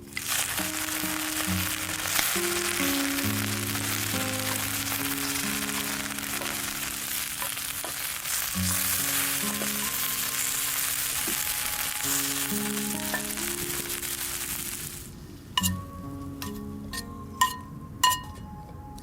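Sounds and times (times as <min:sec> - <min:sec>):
beef sizzling in a pan: 0:00.0 - 0:15.1
soft background music: 0:00.0 - 0:19.0.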